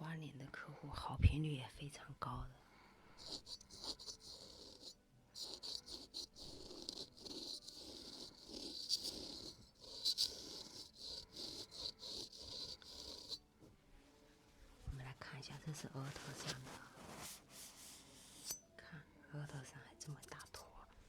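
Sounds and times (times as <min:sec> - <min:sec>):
razor scraping skin: 0:03.2 - 0:13.4.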